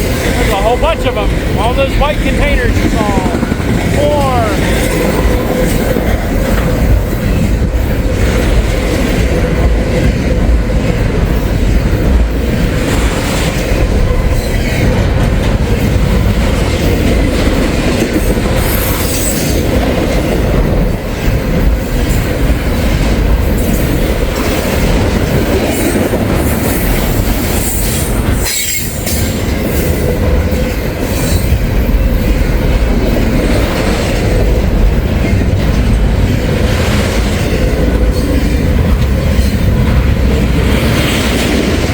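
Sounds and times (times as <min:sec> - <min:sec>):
train wheels clacking over rails: 0:00.0 - 0:41.9
wheel squeal: 0:27.5 - 0:29.3.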